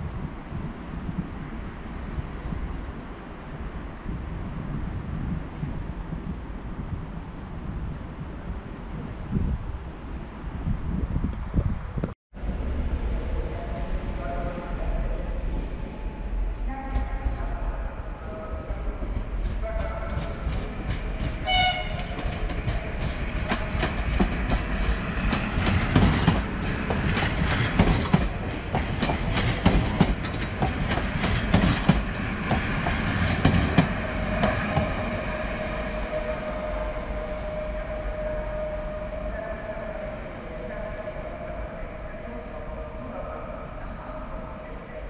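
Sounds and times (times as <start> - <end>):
train wheels clacking on track: 19.0 - 35.2
train horn toot: 21.4 - 22.3, 34.4 - 40.0.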